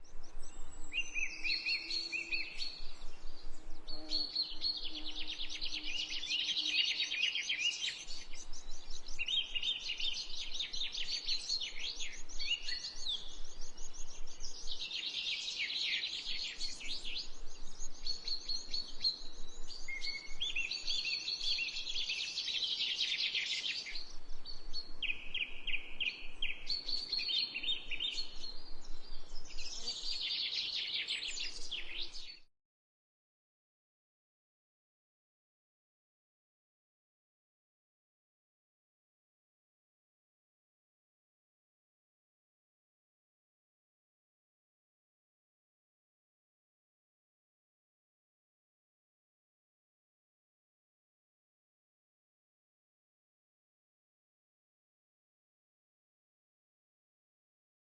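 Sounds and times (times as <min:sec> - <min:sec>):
small birds chirping and trilling: 0:00.0 - 0:32.5.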